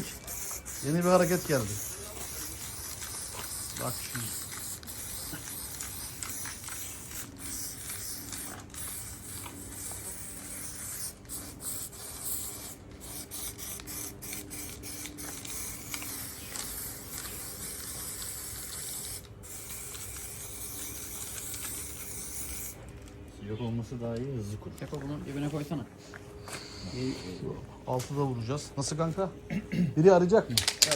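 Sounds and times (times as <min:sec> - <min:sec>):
spray paint can hissing: 0:00.0 - 0:22.8.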